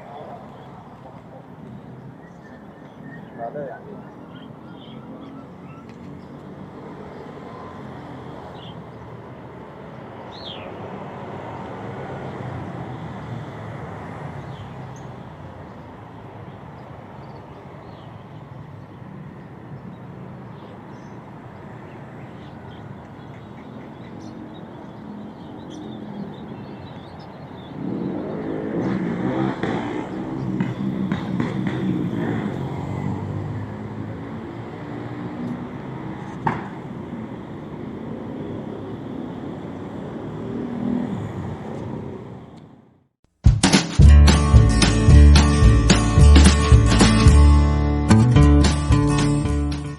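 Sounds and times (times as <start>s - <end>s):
street traffic: 0.0s - 49.9s
motor vehicle passing: 27.5s - 38.8s.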